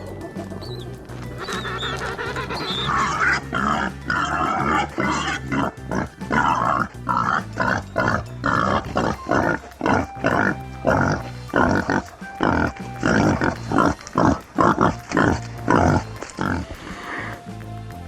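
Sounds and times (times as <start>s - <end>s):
pigs grunting: 0.0s - 17.4s
background music: 0.0s - 18.0s.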